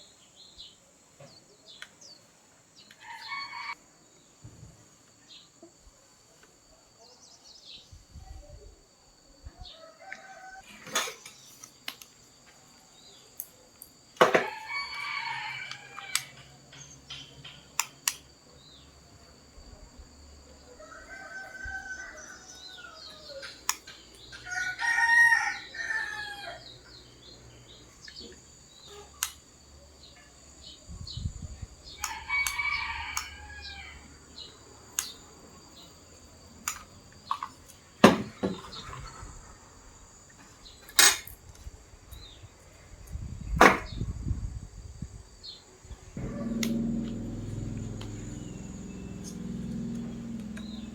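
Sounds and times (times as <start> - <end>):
rooster crowing: 3.0 - 3.8, 9.7 - 10.7, 14.4 - 16.5, 20.7 - 23.4, 24.4 - 26.7, 32.0 - 34.2, 46.2 - 50.9.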